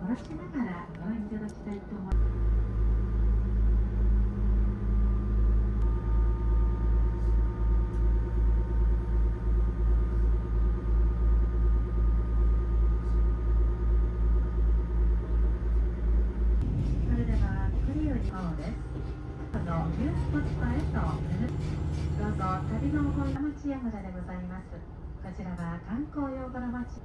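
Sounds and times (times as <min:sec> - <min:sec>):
railcar engine low rumble: 0:00.0 - 0:27.0.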